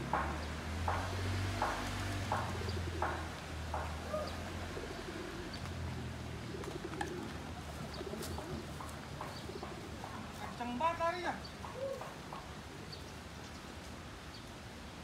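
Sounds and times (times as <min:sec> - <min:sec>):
soft knocks: 0:00.0 - 0:04.1
birds cooing: 0:00.3 - 0:10.4, 0:11.4 - 0:13.6.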